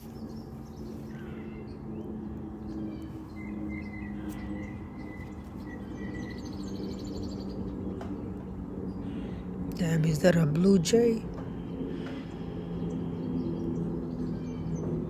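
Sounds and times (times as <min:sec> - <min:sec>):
small birds chirping: 0:00.0 - 0:10.2
steady low hum: 0:00.0 - 0:15.0.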